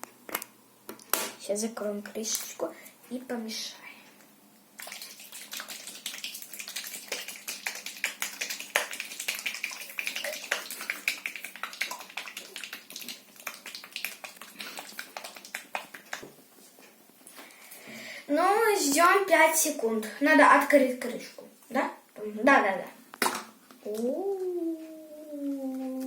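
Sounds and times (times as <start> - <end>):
plastic cup shaken rapidly clicking: 4.8 - 16.3.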